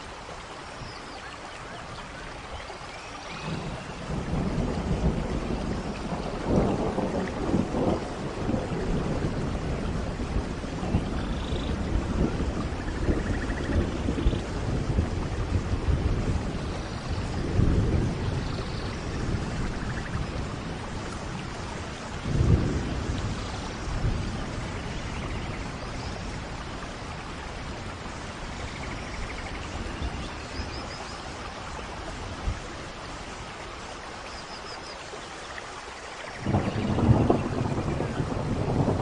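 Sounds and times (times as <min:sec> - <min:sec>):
steady rain: 0:00.0 - 0:39.0
rolling thunder: 0:03.3 - 0:30.8, 0:36.4 - 0:39.0.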